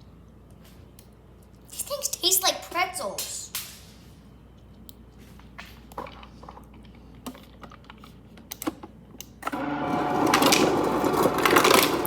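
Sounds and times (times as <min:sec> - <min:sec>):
ice dispenser motor buzzing: 0:09.4 - 0:12.0
ice cubes clattering: 0:10.2 - 0:12.0.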